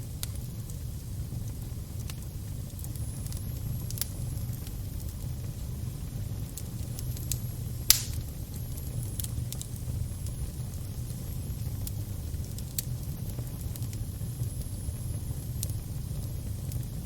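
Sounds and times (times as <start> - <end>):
fire crackling: 0.0 - 17.0
sharp snaps and pops: 6.5 - 10.4.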